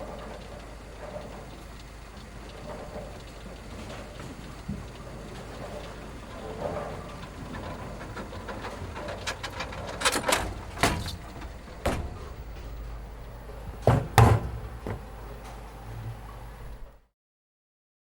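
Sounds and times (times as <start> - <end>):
low steady hum: 0.0 - 17.0
sharp knocks and clatters: 2.2 - 12.9, 13.6 - 15.6.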